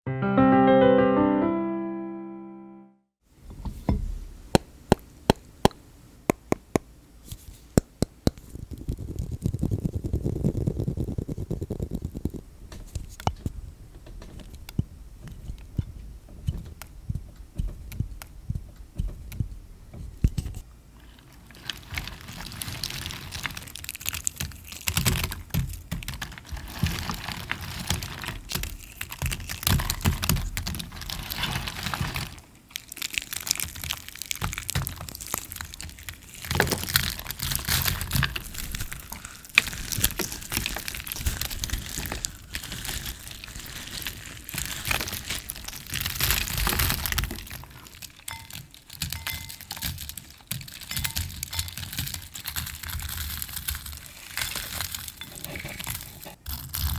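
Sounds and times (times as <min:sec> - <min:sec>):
sparse clicks and taps: 0:04.5 - 0:20.6
soapy hand-washing squishing: 0:21.0 - 0:56.9.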